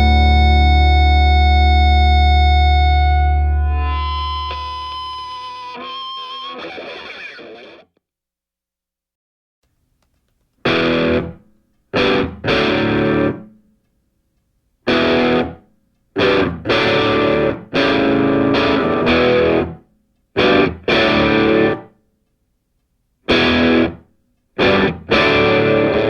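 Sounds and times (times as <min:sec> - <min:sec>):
distorted electric guitar chords: 0:00.0 - 0:07.9, 0:10.6 - 0:11.4, 0:12.0 - 0:13.5, 0:14.9 - 0:15.6, 0:16.2 - 0:19.8, 0:20.4 - 0:21.9, 0:23.3 - 0:24.0, 0:24.6 - 0:26.0.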